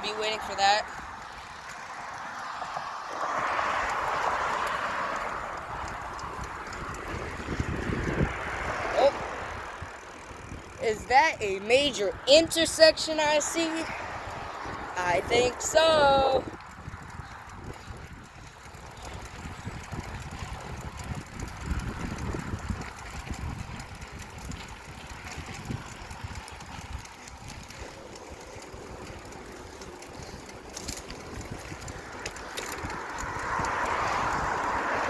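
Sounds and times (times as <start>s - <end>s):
bicycle road noise: 0.0s - 35.0s
wind buffeting microphone: 0.0s - 35.0s
faint clicks: 3.8s - 7.2s.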